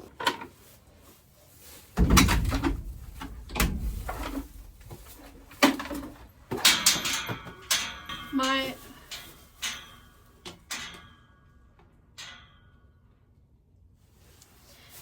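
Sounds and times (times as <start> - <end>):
low handling rumble: 2.0 - 6.6
objects knocking and clattering: 2.0 - 12.8.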